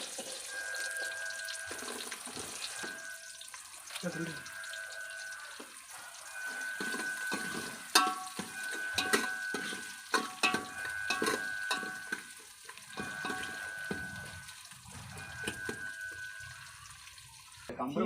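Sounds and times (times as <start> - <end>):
food sizzling in a pot: 0.0 - 17.7
metal ladle knocking on pot: 6.8 - 12.3.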